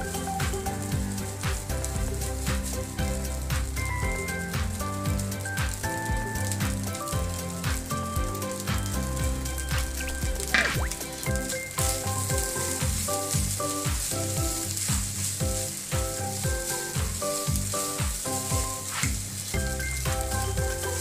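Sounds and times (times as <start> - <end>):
background music with a beat: 0.0 - 21.0
food sizzling in a wok: 0.0 - 21.0
wooden spatula stirring: 9.8 - 21.0.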